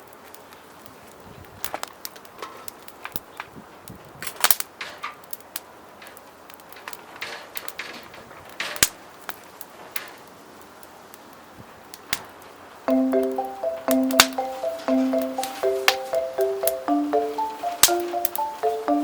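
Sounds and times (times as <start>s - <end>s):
clicks and snaps of campfire cooking: 1.6s - 12.6s
low steady hiss: 9.0s - 19.0s.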